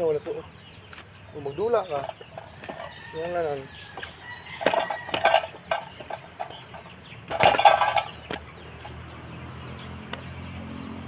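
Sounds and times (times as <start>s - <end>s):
rooster clucking: 1.7s - 8.9s.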